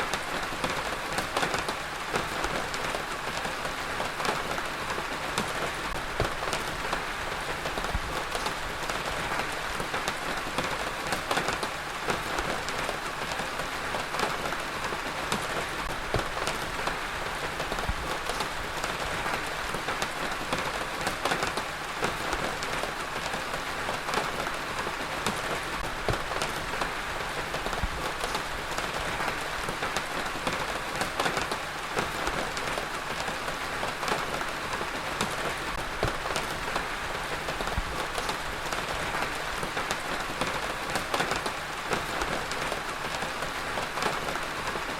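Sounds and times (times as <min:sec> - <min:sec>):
heavy rain on a hard surface: 0:00.0 - 0:44.9.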